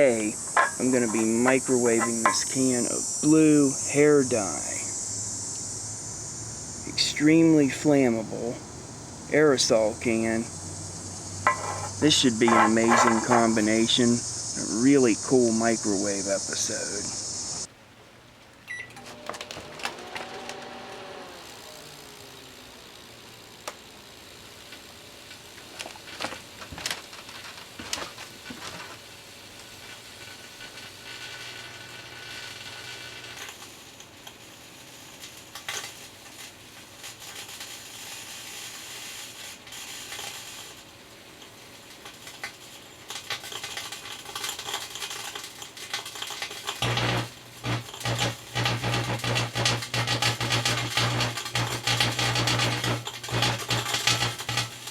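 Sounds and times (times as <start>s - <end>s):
sparking crackles and snaps: 0.0s - 17.7s, 22.3s - 54.9s
microwave oven hum: 18.7s - 24.0s, 46.8s - 54.9s.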